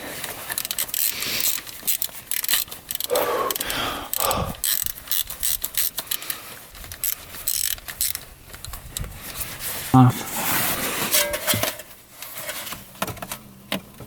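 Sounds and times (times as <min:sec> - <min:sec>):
socket ratchet clicking: 0:00.6 - 0:08.3
short scraping sounds: 0:09.2 - 0:12.7.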